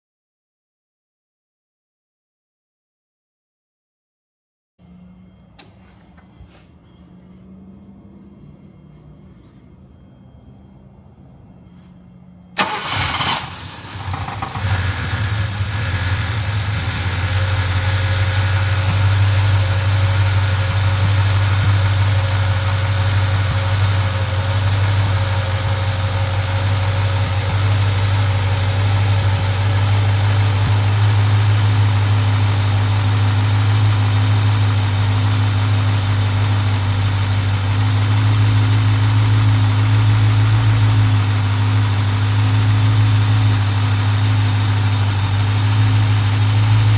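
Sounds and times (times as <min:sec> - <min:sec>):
car engine idling: 0:04.8 - 0:46.9
car engine cranking: 0:12.5 - 0:46.9.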